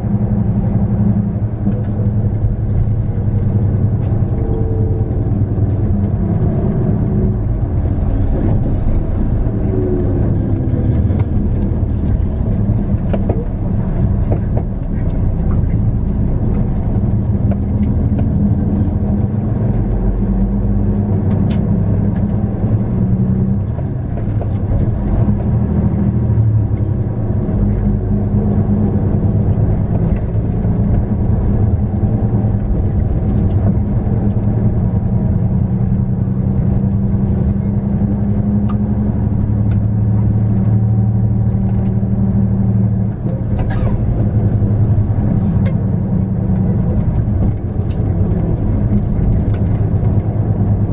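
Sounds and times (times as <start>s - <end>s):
diesel engine drone: 0.0s - 50.9s
light rattles and clicks: 1.4s - 20.4s, 28.8s - 36.0s, 38.6s - 50.9s.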